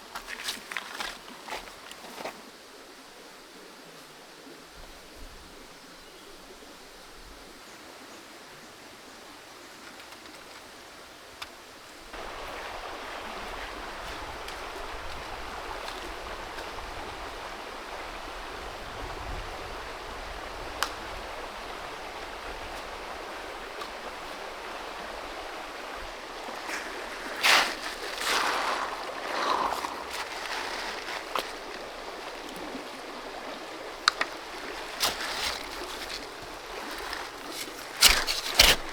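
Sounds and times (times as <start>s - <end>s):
creek water rushing: 10.8s - 38.9s.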